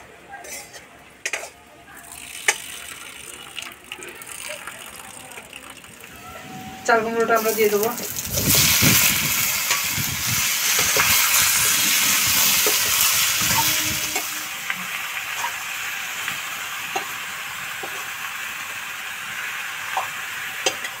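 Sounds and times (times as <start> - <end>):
metal spoon scraping a pan: 0.4 - 1.6, 10.6 - 14.5
hot oil sizzling: 0.4 - 21.0.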